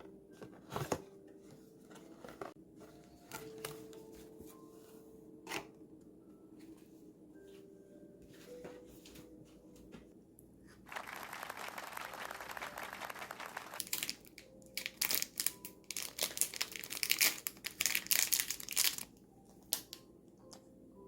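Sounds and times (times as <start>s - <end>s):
wrapping material crinkling: 10.9s - 19.1s
wrapping material rustling: 11.0s - 19.1s.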